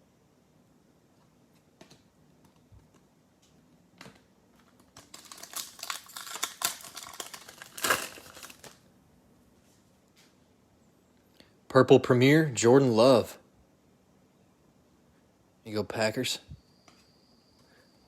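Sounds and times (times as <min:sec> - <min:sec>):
plastic wrapper crinkling: 0:04.6 - 0:08.9.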